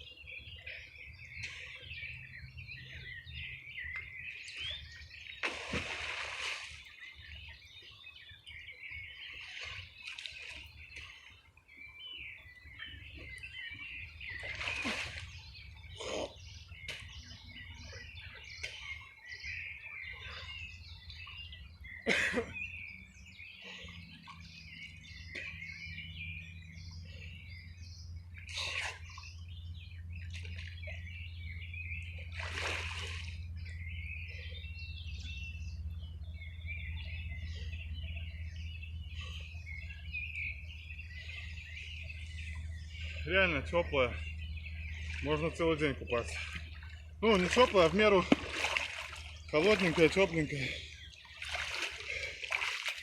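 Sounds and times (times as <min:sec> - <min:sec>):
small birds chirping: 0:00.0 - 0:53.0
water splashing: 0:04.6 - 0:07.1, 0:14.3 - 0:16.3, 0:32.2 - 0:33.5, 0:44.9 - 0:53.0.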